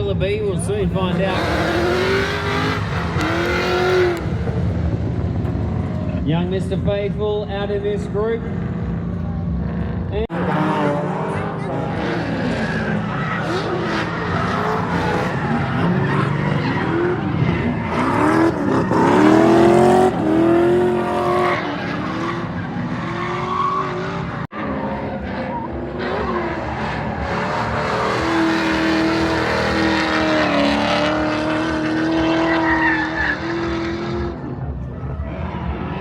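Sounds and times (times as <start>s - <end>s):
car engines revving: 0.0s - 36.0s
tyres squealing and skidding: 10.3s - 36.0s.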